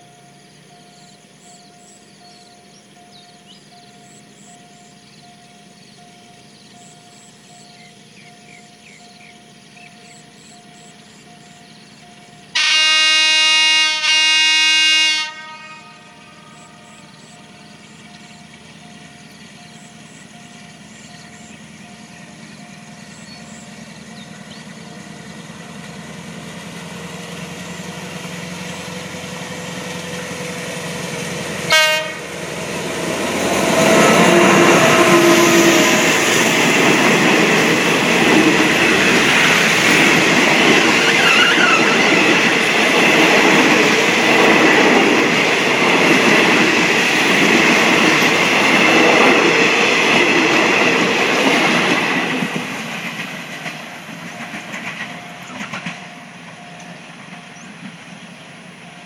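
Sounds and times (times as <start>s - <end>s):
diesel locomotive passing: 0.0s - 59.0s
coach wheels clattering over rail joints: 16.5s - 31.7s, 32.3s - 59.0s.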